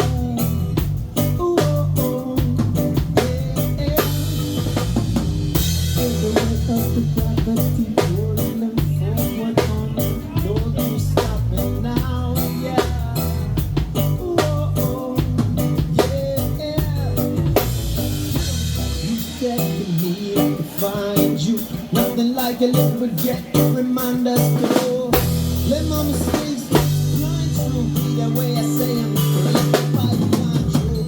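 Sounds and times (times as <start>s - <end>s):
bass guitar: 0.0s - 31.0s
drum kit beat: 0.0s - 31.0s
electric guitar: 0.0s - 31.0s.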